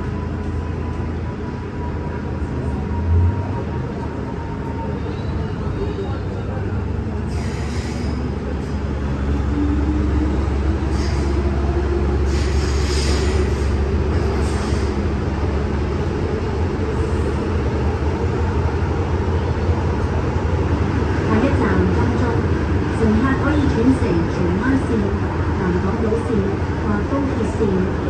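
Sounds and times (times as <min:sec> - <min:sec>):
train rumbling in tunnel: 0:00.0 - 0:28.0
wheels squealing on rails: 0:07.2 - 0:15.2.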